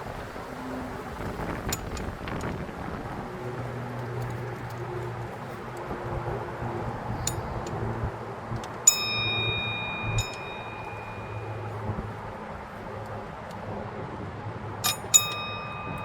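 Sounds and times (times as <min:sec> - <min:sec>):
light metallic clicks: 0:06.9 - 0:12.2, 0:14.8 - 0:16.0
steel tools clinking on metal: 0:07.1 - 0:07.8, 0:08.6 - 0:11.8, 0:14.8 - 0:16.0.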